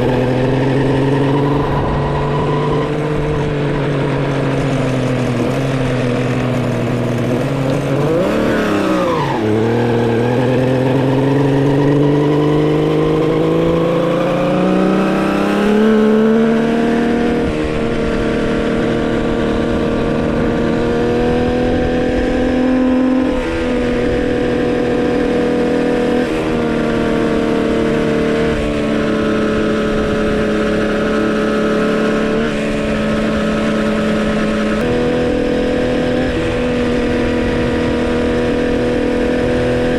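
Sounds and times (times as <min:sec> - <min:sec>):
two-stroke engine running: 0:00.0 - 0:22.6.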